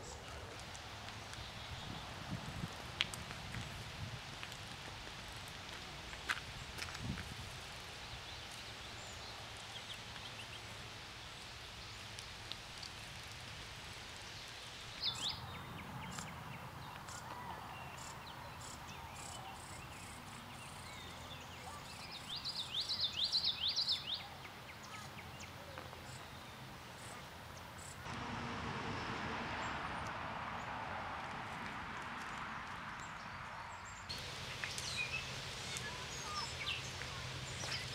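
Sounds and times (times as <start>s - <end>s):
background hiss: 34.1s - 37.9s.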